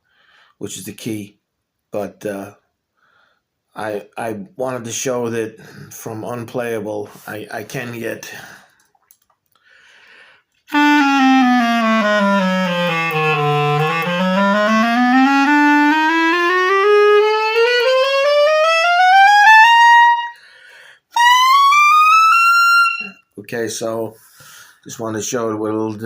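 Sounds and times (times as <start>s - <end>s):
clarinet playing a scale: 10.7s - 23.3s.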